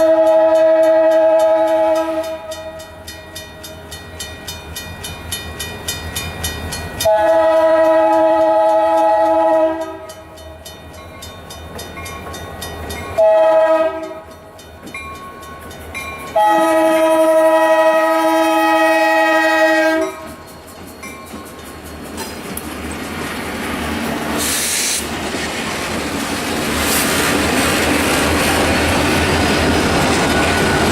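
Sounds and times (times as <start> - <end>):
locomotive air horn blasts: 0.0 - 2.8, 7.0 - 10.2, 13.2 - 14.3, 16.4 - 20.4
train rumbling: 0.0 - 30.9.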